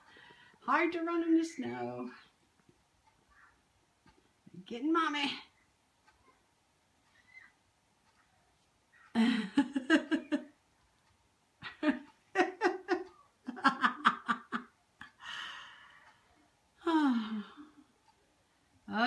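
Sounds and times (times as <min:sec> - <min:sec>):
person laughing: 0:09.1 - 0:10.5, 0:11.6 - 0:15.3.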